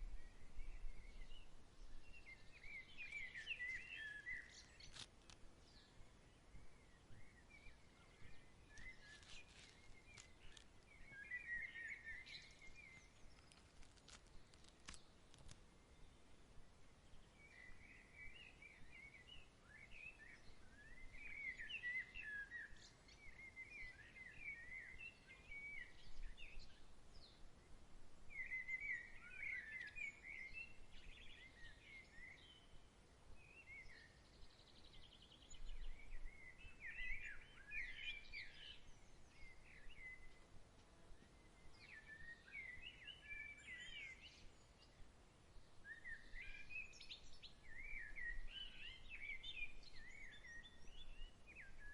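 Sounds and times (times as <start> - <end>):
faint outdoor hiss: 0.0 - 51.9
songbird singing: 0.0 - 51.9.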